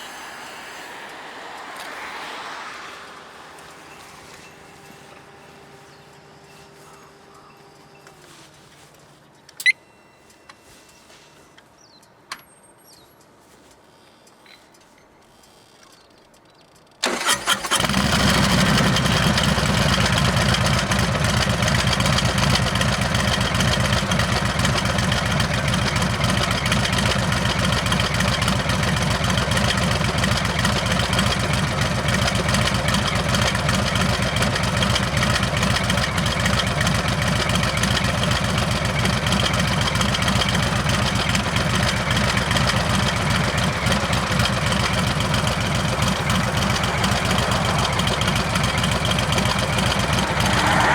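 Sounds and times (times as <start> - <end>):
motorcycle engine idling: 17.0 - 50.9
motorcycle engine starting: 17.0 - 50.9.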